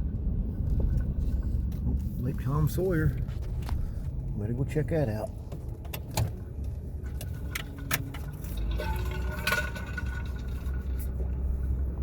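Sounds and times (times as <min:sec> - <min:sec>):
car engine and road rumble: 0:00.0 - 0:12.0
clicks and rattles in car cabin: 0:05.1 - 0:11.4.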